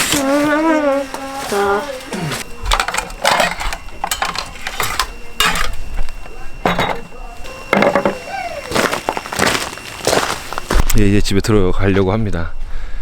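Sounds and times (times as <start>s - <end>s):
soft voices: 0.2s - 4.0s, 4.8s - 9.4s
dishes clattering and clinking: 2.6s - 8.3s.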